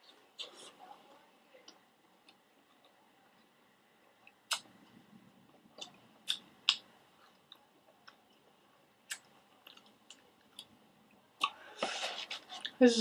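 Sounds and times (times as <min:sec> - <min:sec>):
person chewing: 0:00.0 - 0:00.8, 0:04.2 - 0:04.8, 0:05.5 - 0:10.7
wet mouth clicks and smacks: 0:04.5 - 0:04.7, 0:05.8 - 0:06.9, 0:09.1 - 0:10.7.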